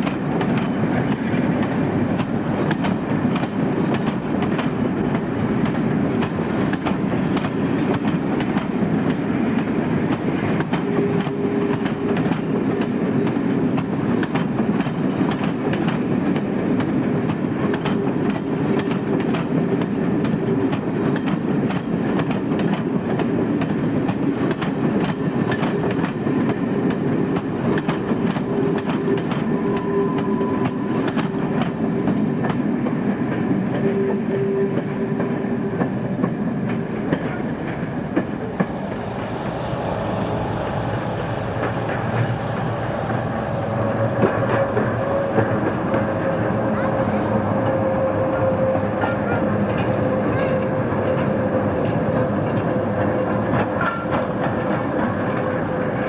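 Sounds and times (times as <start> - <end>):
train wheels clicking over rail joints: 0.0 - 56.0
steady low tone: 36.7 - 50.4.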